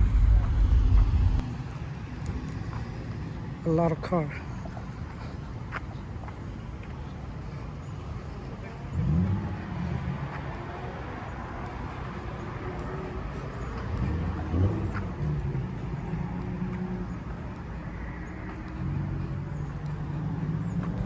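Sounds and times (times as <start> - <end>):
cars passing: 0.0 - 21.0.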